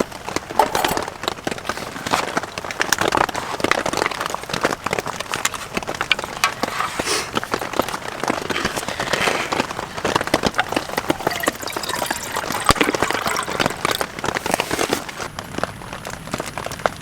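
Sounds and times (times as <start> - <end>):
heavy rain on tent fabric: 1.2 - 10.2, 14.3 - 17.0.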